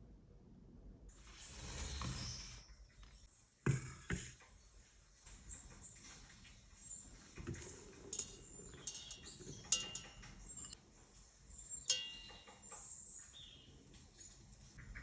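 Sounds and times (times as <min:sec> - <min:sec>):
kitchenware clinking: 0:07.5 - 0:10.8.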